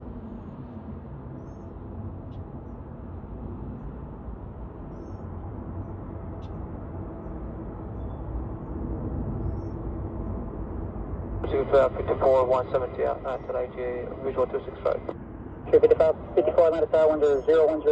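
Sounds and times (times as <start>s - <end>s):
distant jet rumble: 1.6s - 17.9s
faint bird chirps: 4.9s - 5.3s, 7.9s - 8.3s, 9.4s - 9.8s.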